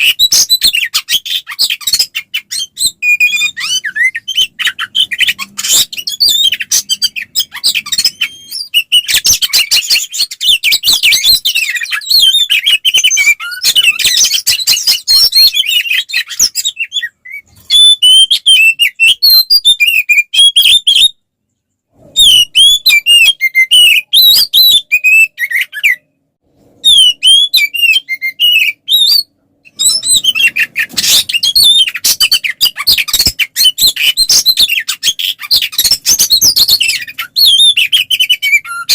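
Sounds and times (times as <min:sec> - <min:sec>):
magpie-robin singing: 0:00.0 - 0:21.2, 0:22.2 - 0:26.1, 0:26.8 - 0:38.9.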